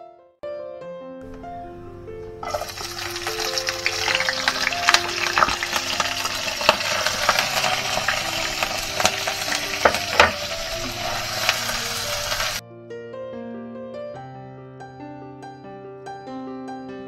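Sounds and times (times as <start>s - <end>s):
shallots sizzling in hot oil: 2.4s - 12.6s
spatula knocking against pan: 9.8s - 11.0s.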